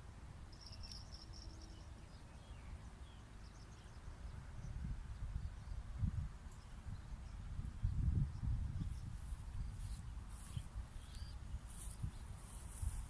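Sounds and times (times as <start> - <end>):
low rumbling outdoor noise: 0.0 - 13.0
insect chirping trill: 0.5 - 2.0
faint bird-like chirps: 0.5 - 4.8, 6.5 - 12.6.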